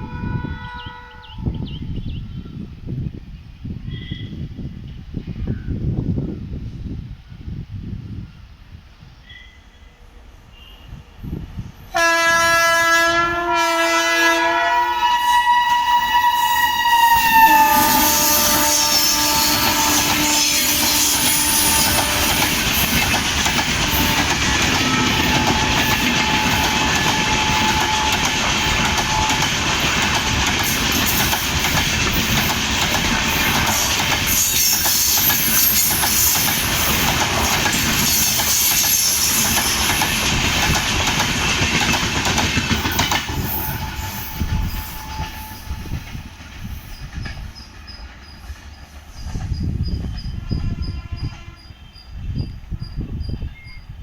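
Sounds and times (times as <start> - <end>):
train horn blast: 0.0 - 1.6, 11.9 - 23.0, 23.6 - 29.9, 43.3 - 46.2, 50.4 - 52.0
train wheels clattering: 17.5 - 50.9.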